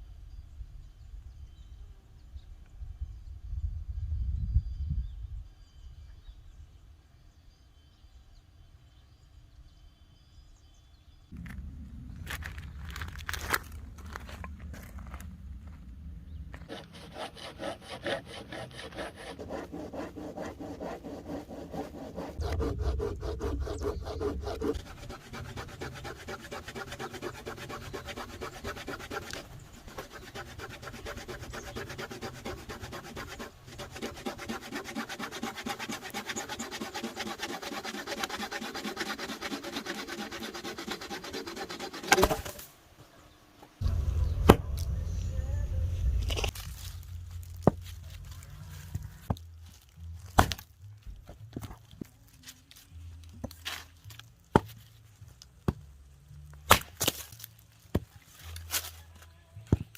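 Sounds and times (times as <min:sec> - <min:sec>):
saw cutting firewood: 0:16.6 - 0:42.7, 0:43.8 - 0:44.9.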